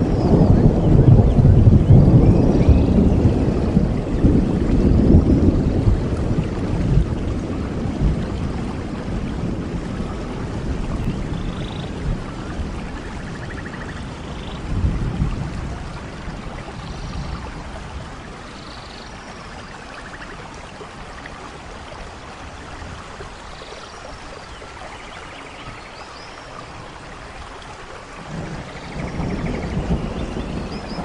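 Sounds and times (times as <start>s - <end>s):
thunder rolling: 0.0s - 18.2s, 28.2s - 31.0s
steady rainfall: 0.0s - 31.0s.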